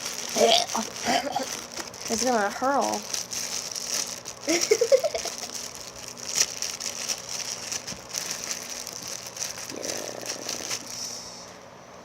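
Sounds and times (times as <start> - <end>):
squishy toy rustling and crackling: 0.0 - 11.2.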